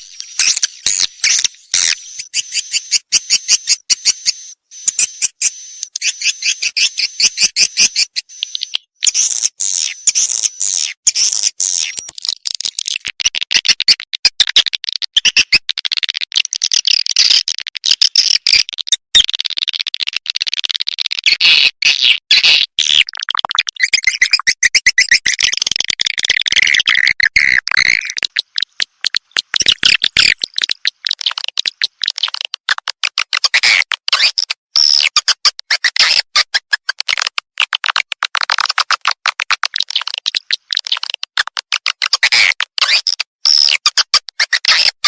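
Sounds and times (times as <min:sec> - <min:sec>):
swiftlet calls: 0:00.2 - 0:08.6.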